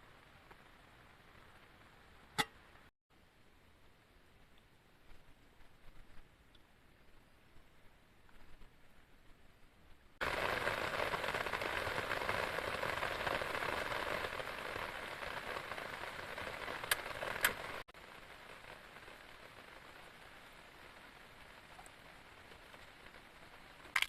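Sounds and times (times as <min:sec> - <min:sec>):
heavy rain hissing: 0:10.2 - 0:24.0.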